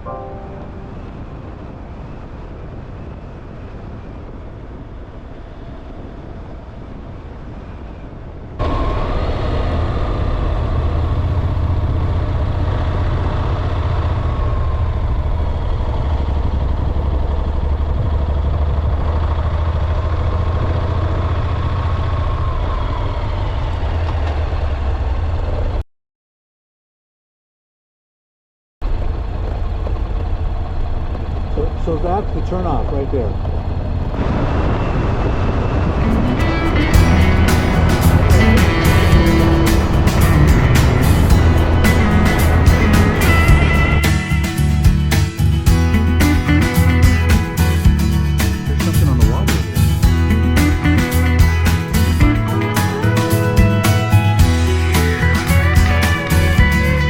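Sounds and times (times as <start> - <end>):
faint wavering whine: 0.0 - 15.7
motorcycle engine rumble: 0.0 - 25.8, 28.8 - 57.0.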